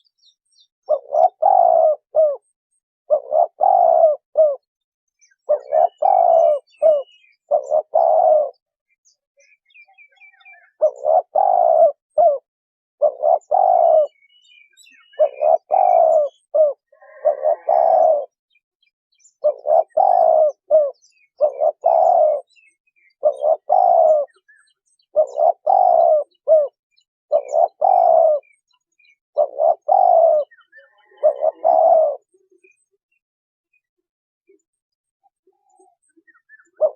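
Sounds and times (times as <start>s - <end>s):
faint high chirps of small birds: 0.0s - 36.9s
dove cooing: 0.8s - 4.7s, 5.3s - 8.7s, 10.0s - 18.4s, 19.4s - 32.8s, 35.3s - 36.9s.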